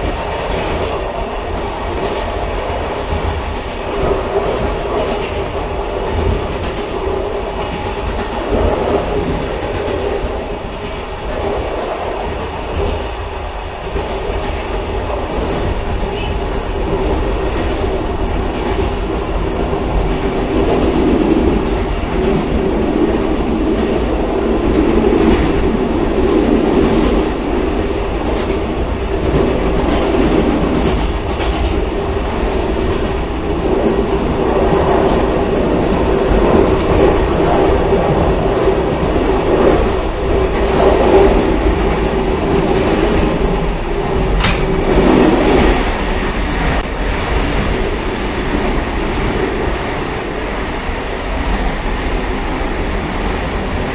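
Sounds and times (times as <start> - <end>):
railcar rumbling along track: 0.0 - 53.9
rail clatter: 43.8 - 48.0.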